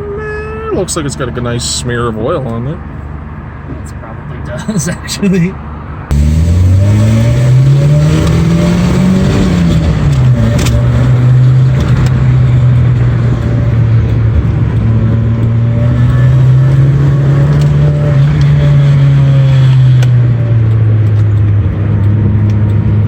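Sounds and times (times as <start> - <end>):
car engine accelerating: 6.1 - 23.0.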